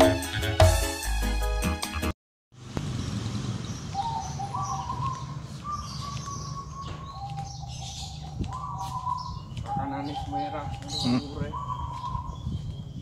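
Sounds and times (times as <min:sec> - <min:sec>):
birds calling with whistle-like notes: 0:03.0 - 0:13.0.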